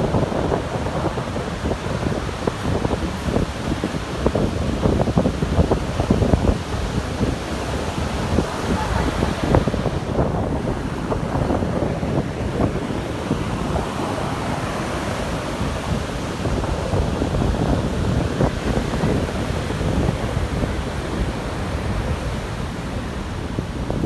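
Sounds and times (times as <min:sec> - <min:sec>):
sea surf washing on shore: 0:00.0 - 0:24.0
wind buffeting microphone: 0:00.0 - 0:24.0.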